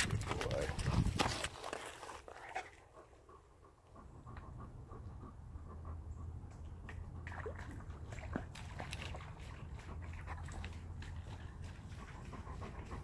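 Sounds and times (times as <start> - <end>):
dog panting: 0.7 - 7.2, 9.6 - 13.0.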